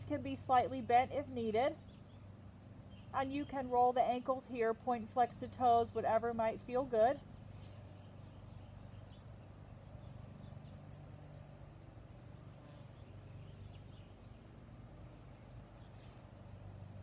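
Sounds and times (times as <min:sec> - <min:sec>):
low steady hum: 0:00.0 - 0:17.0
bird chirping: 0:01.0 - 0:04.4, 0:07.0 - 0:16.6.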